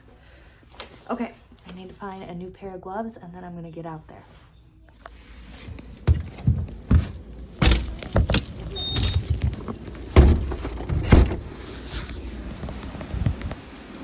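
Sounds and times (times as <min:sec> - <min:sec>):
objects knocking and bumping: 0:06.1 - 0:11.6.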